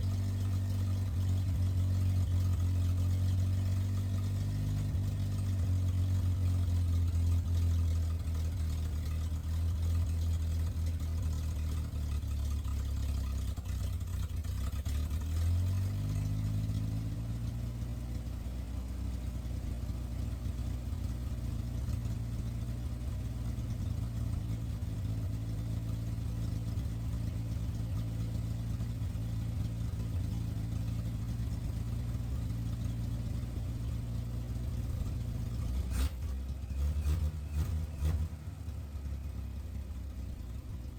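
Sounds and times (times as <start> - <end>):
truck engine idling roughly: 0.0 - 17.0, 19.6 - 40.9.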